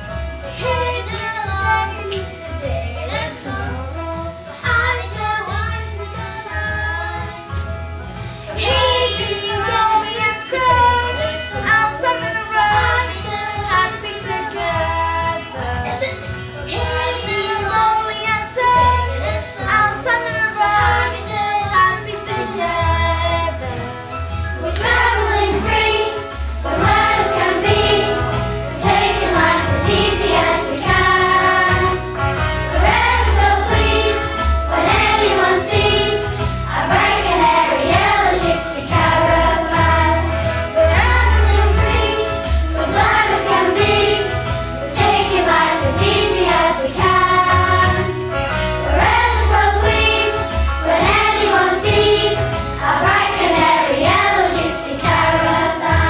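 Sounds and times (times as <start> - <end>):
musical accompaniment with bass: 0.0 - 56.0
children singing together: 8.6 - 11.2, 24.6 - 32.1, 32.7 - 48.2, 48.9 - 56.0.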